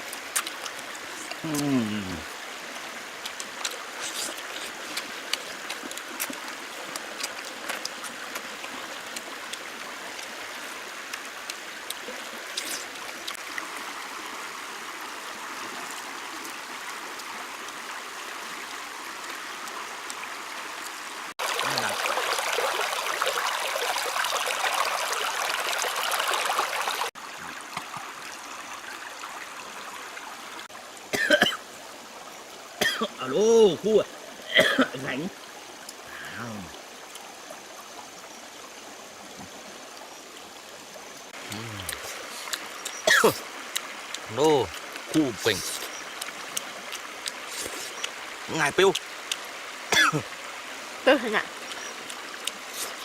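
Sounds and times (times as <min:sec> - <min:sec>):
small clicks and splashes: 0:00.0 - 0:01.4, 0:02.7 - 0:13.7, 0:15.6 - 0:29.0, 0:34.8 - 0:36.1, 0:39.3 - 0:49.8, 0:51.4 - 0:53.0
stream water flowing: 0:00.0 - 0:53.0.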